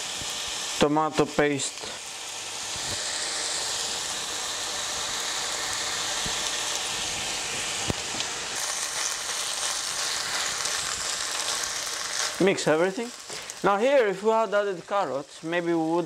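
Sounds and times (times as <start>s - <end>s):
rice sizzling in a pan: 0.0s - 16.0s
spatula stirring rice: 6.0s - 12.5s.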